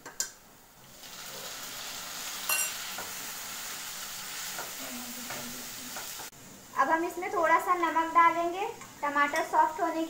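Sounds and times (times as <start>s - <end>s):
food sizzling in oil: 0.6s - 10.0s
sharp ringing clink: 2.5s - 2.7s.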